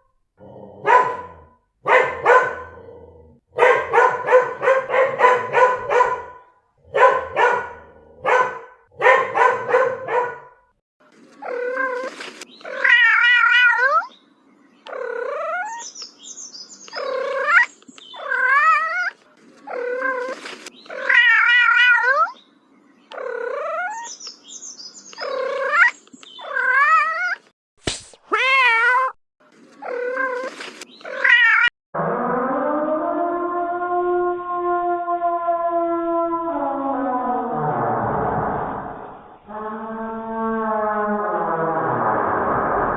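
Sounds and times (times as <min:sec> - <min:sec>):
dog barking: 0:00.4 - 0:10.7
cat yowling: 0:00.8 - 0:02.8, 0:12.8 - 0:14.1, 0:21.0 - 0:22.4, 0:31.2 - 0:31.7.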